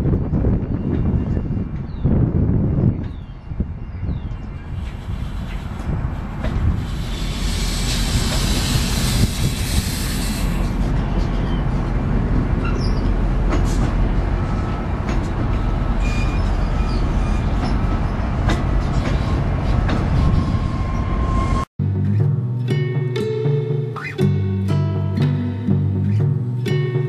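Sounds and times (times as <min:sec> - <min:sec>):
steel wheels rumbling on rail: 0:04.1 - 0:21.7
sharp rail clicks and clacks: 0:04.8 - 0:15.9, 0:17.4 - 0:20.2
faint wheel squeal: 0:15.6 - 0:18.2.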